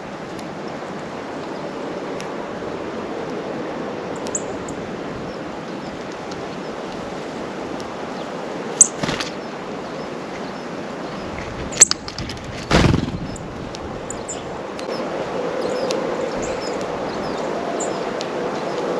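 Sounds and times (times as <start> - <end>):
steady background hiss: 0.0 - 12.1
birds chipping: 3.2 - 18.9.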